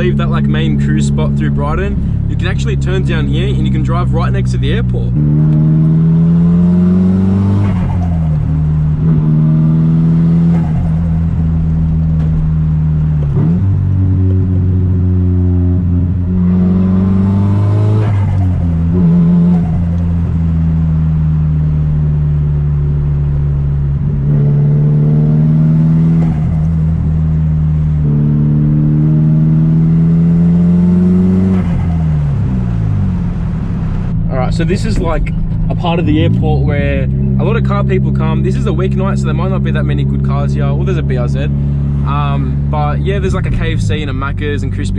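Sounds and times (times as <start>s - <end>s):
car engine cruising: 0.0s - 44.9s.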